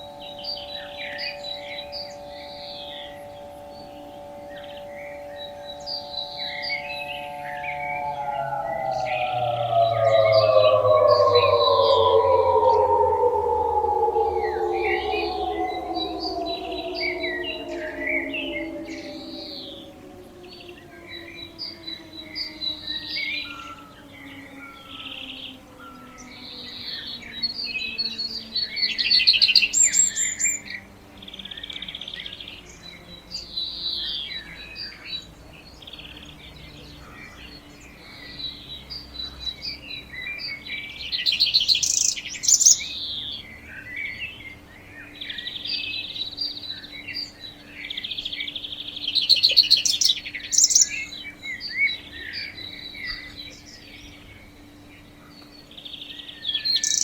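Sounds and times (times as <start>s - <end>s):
faint low hum: 0.0s - 28.7s
songbirds chirping and trilling: 0.0s - 57.0s.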